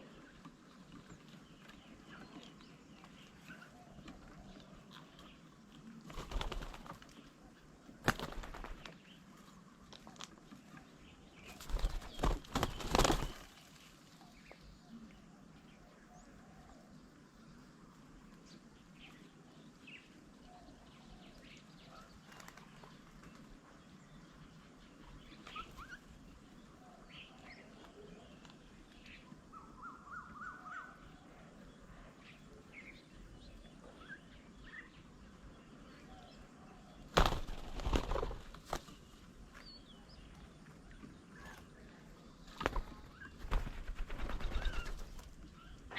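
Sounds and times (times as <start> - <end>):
birds chirping and calling: 0.0 - 13.5, 19.9 - 45.9
birds wings flurrying: 6.1 - 7.2, 8.0 - 9.2, 11.4 - 14.0, 22.2 - 23.5, 37.1 - 39.1, 42.4 - 45.7.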